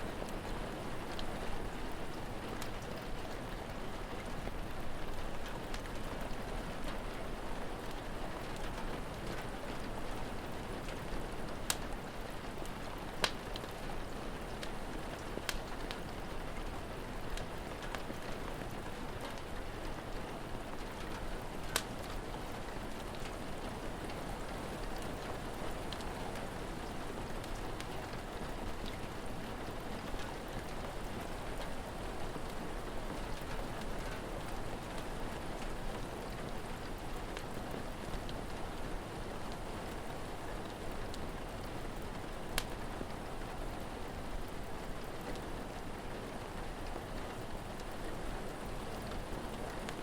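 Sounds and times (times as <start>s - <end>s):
steady rain: 0.0s - 50.0s
fire crackling and popping: 0.4s - 38.6s, 39.5s - 50.0s.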